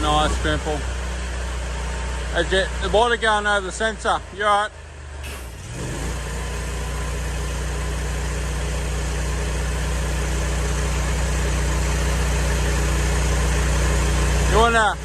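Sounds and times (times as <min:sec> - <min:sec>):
pressure washer engine running: 0:00.0 - 0:04.0, 0:05.2 - 0:15.0.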